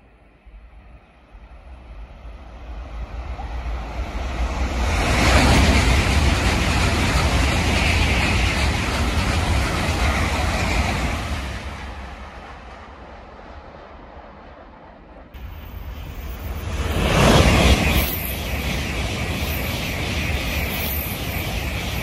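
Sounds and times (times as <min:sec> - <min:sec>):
high-speed train passing: 0:00.0 - 0:22.0.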